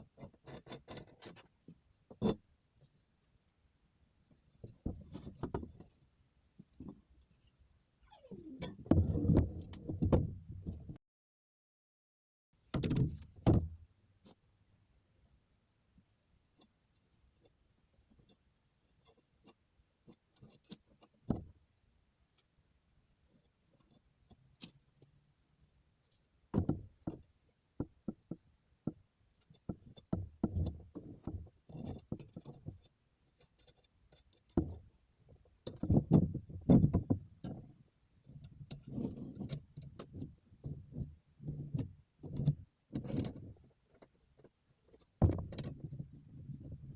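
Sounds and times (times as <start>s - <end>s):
objects knocking and rattling: 45.2s - 46.9s.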